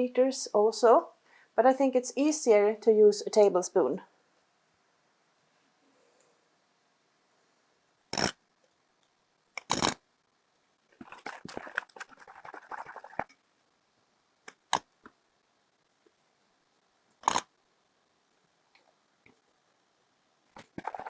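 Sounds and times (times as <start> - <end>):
spoon scraping peanut butter: 8.1 - 8.4, 9.6 - 10.0, 17.2 - 17.4.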